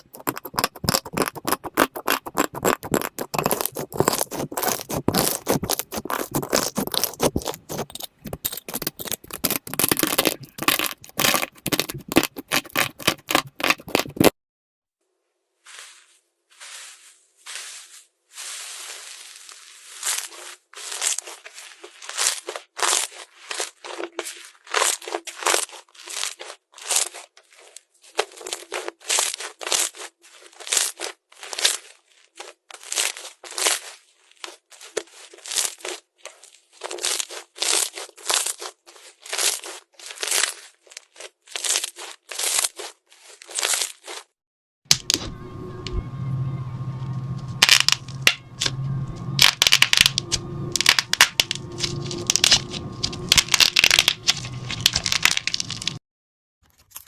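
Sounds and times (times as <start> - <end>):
slime squeezed by hand crackling: 0.0 - 14.3, 18.7 - 44.3
low hum: 44.9 - 56.0.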